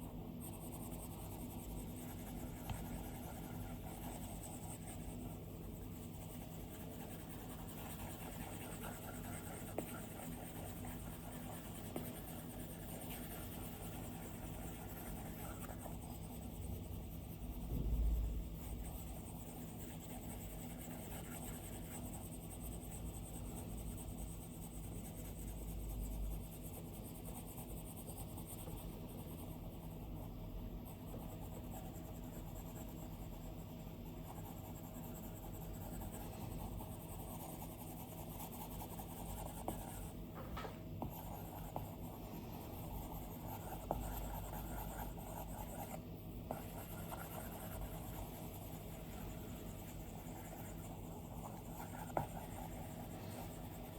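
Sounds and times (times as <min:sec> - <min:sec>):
stylus scratching on glass screen: 0:41.0 - 0:53.9.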